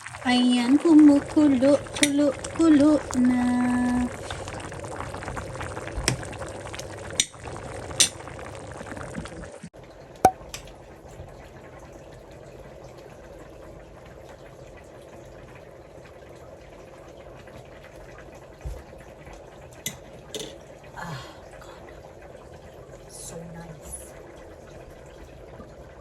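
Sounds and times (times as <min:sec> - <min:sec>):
broth boiling and bubbling: 0:00.0 - 0:26.0.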